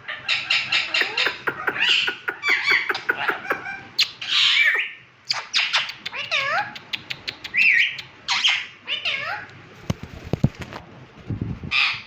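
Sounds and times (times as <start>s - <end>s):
parakeets chirping: 0.0s - 9.5s.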